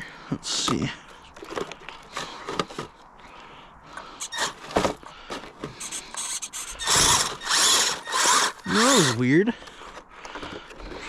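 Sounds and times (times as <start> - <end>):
electric motors whirring: 4.2 - 4.7, 5.8 - 9.2.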